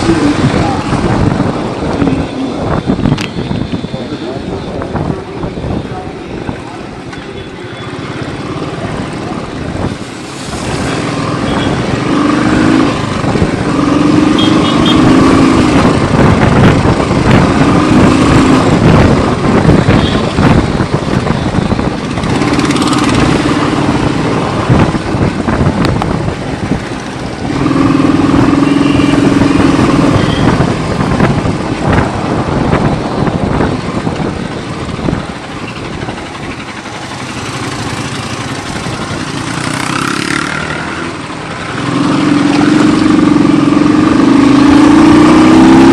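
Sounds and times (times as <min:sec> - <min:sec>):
wind rush on microphone: 0:00.0 - 0:07.0, 0:08.7 - 0:40.5
motorcycle engine running: 0:11.0 - 0:45.9.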